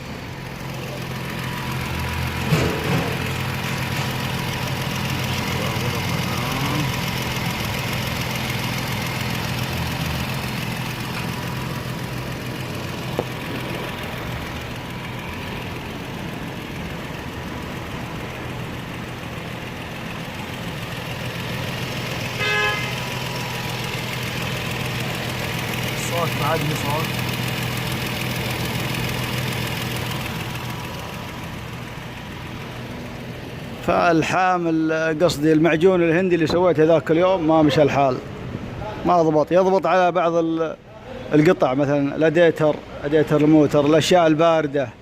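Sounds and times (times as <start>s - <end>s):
engine idling: 0.0s - 39.0s
exhaust leaking: 0.1s - 34.0s.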